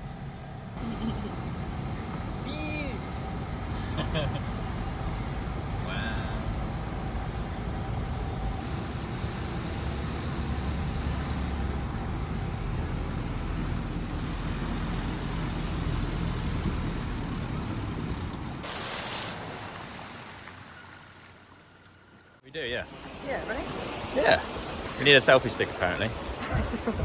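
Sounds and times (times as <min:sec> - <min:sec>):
wind buffeting microphone: 0:26.1 - 0:27.0.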